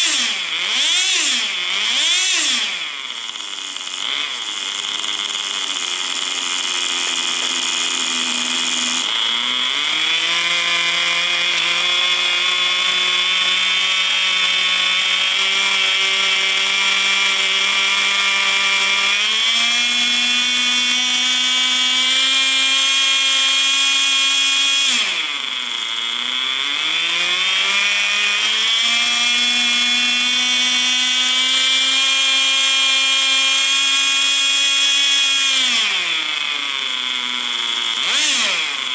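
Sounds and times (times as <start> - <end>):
nitro engine high buzzing whine: 0.0 - 38.9.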